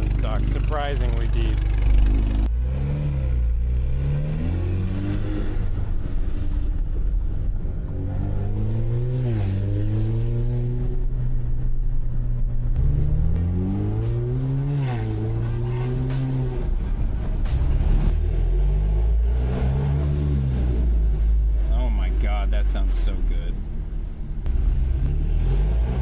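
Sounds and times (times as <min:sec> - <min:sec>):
car exhaust revving: 0:00.0 - 0:26.0.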